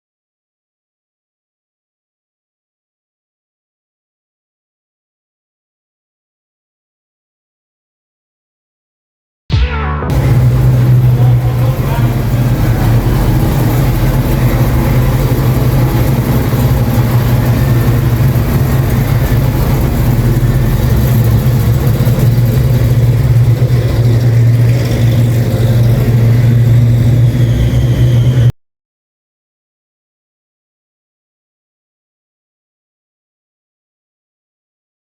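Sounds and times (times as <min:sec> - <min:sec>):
car engine running: 0:10.1 - 0:28.5.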